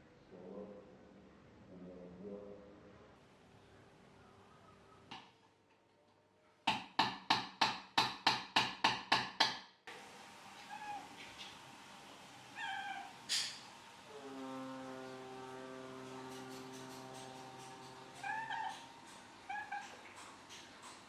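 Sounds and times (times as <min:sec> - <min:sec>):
cat meowing: 0:10.6 - 0:11.2, 0:12.5 - 0:13.2, 0:18.2 - 0:18.9, 0:19.5 - 0:20.2.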